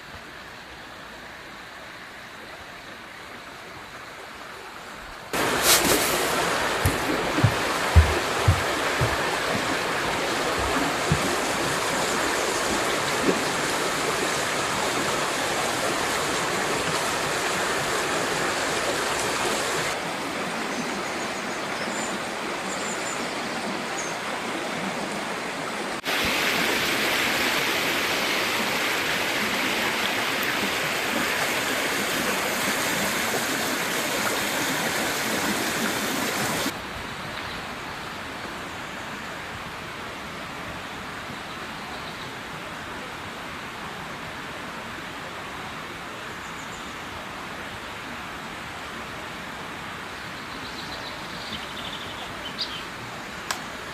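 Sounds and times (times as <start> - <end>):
river water rushing: 0.0 - 41.5.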